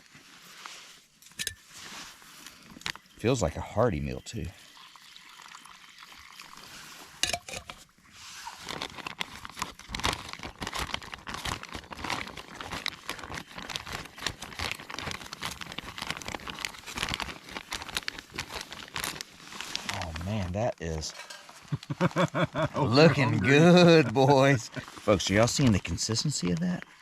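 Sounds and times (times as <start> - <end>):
packaging crinkling: 8.4 - 20.6.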